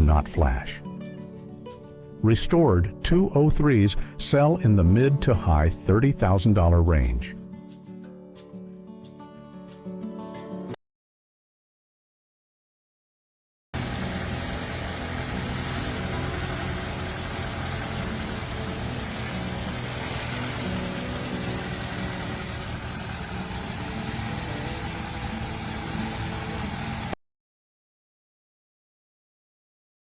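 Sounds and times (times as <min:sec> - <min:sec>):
car engine idling: 0:13.8 - 0:27.1.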